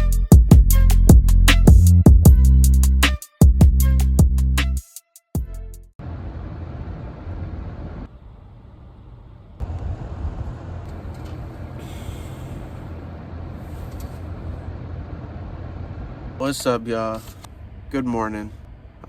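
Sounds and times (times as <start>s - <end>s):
low rumbling background noise: 6.0s - 19.0s.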